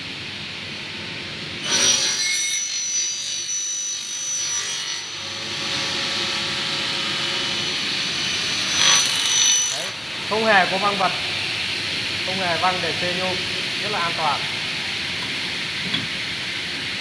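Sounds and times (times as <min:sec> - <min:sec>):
saw screeching through metal: 0:01.6 - 0:10.0.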